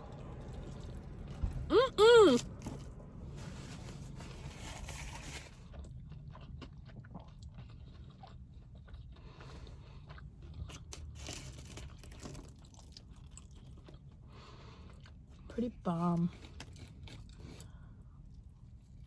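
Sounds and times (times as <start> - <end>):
person chewing crunchy food: 5.0 - 15.4, 16.3 - 18.7.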